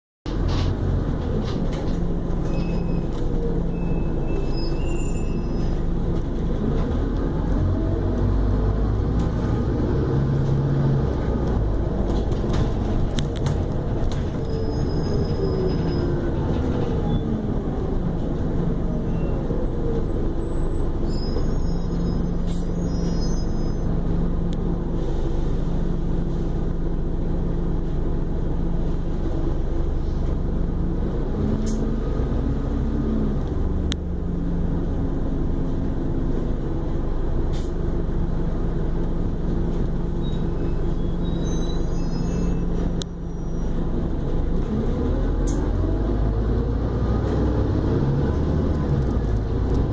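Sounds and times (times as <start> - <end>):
bus engine humming: 0.3 - 49.9
brief high squeals: 2.5 - 5.8, 14.5 - 16.1, 20.4 - 23.9, 40.2 - 43.8.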